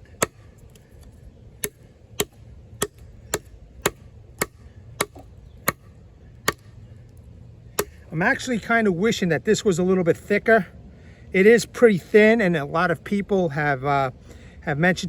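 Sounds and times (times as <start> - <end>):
knife chopping into wood: 0.0 - 6.7, 7.8 - 8.0.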